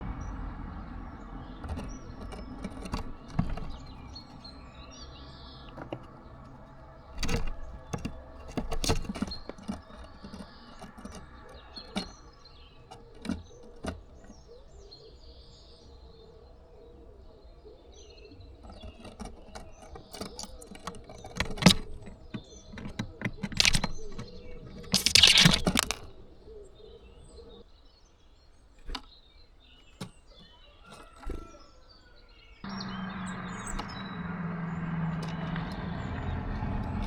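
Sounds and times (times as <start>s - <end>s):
low outdoor rumble: 0.0s - 17.6s, 32.7s - 37.0s
small birds chirping: 0.0s - 37.0s
sharp taps and knocks: 1.4s - 14.5s, 18.6s - 26.2s.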